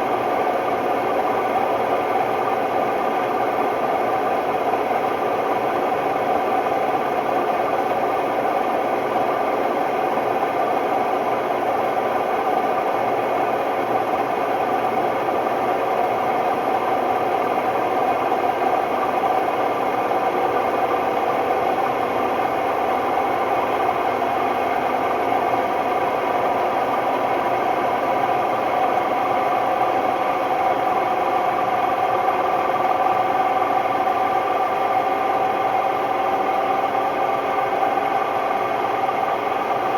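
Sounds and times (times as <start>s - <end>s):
washing machine spinning loudly: 0.0s - 39.9s.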